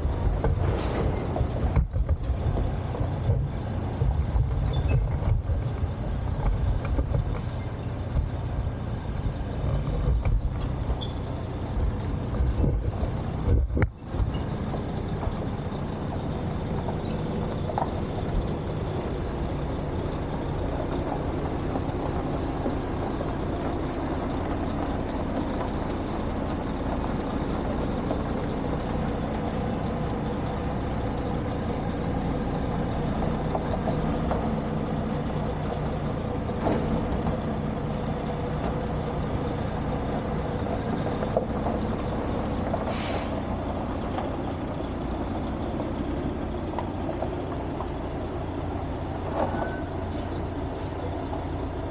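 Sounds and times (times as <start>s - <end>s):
truck engine idling: 0.0s - 51.9s
short hiss: 42.9s - 43.5s.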